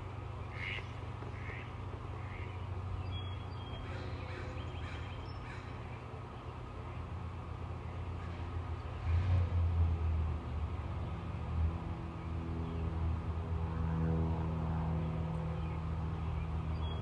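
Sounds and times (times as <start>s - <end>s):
birds calling: 0.0s - 9.4s.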